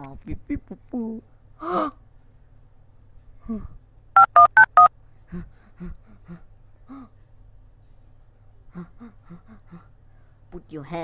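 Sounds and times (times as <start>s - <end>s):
telephone keypad dialing tones: 4.2s - 4.9s.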